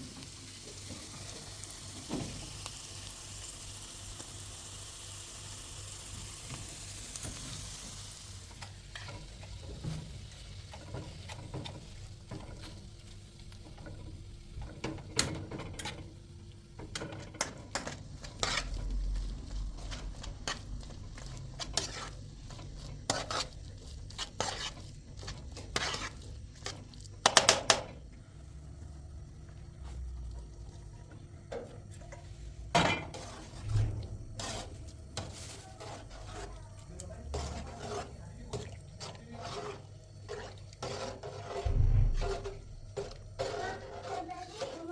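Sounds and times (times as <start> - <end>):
food sizzling in a frying pan: 0.0 - 28.1
utensil scraping a pan: 16.9 - 27.8, 31.9 - 44.9.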